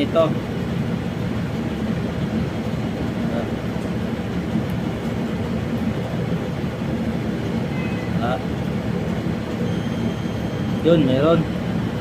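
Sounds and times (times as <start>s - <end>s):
low rumbling hum: 0.0s - 12.0s.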